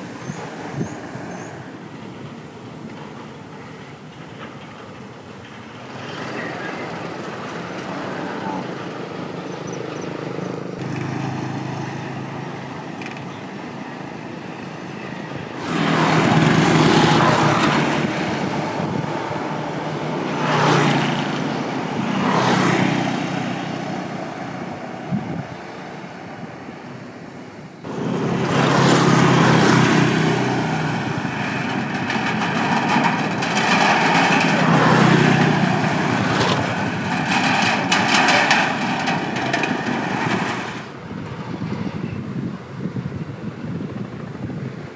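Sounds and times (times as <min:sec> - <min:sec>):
traffic hum: 0:00.0 - 0:44.9
motorcycles passing close: 0:06.0 - 0:14.3, 0:15.6 - 0:25.9, 0:27.9 - 0:41.7.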